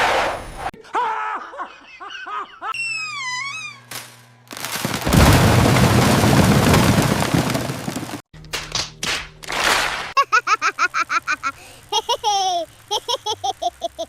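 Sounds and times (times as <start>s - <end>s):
falling whistle tone: 2.8s - 3.8s
explosion-like rumble: 5.0s - 8.2s.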